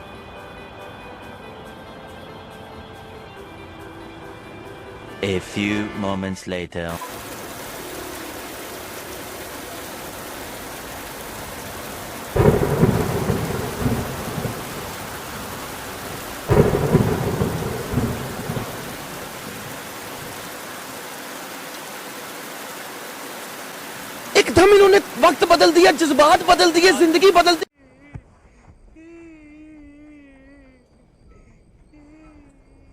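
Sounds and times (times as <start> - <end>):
heavy rain: 6.9 - 27.7
thunderclaps rumbling: 7.1 - 27.6.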